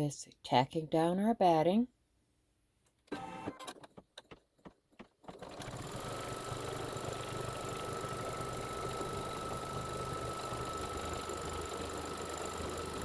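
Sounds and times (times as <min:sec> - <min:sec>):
embroidery machine running: 0:05.3 - 0:13.0.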